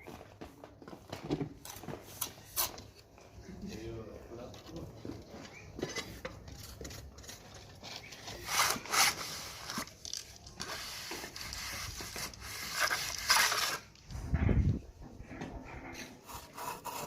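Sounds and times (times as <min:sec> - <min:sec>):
hand tool scraping cement render: 0:06.0 - 0:09.9, 0:10.6 - 0:13.9, 0:15.9 - 0:17.0.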